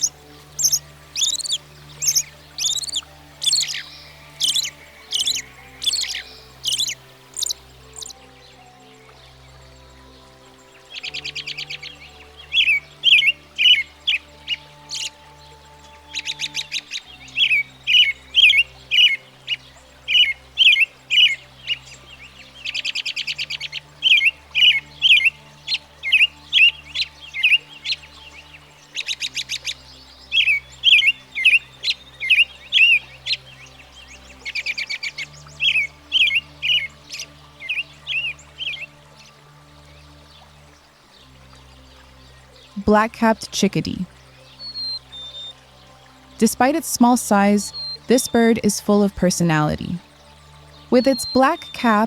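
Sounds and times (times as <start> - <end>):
bird stuttering chatter: 0.0 - 3.8, 4.4 - 8.1
bird singing whistled phrases: 0.0 - 8.2, 44.5 - 45.6, 47.7 - 48.4, 50.9 - 52.0.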